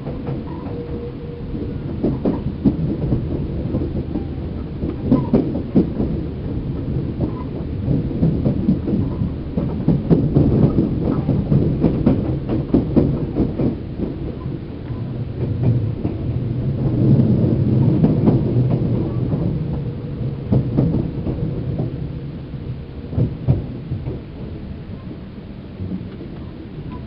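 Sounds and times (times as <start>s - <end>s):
train car low rumble: 0.0s - 27.0s
knocks and clatters: 1.6s - 19.9s.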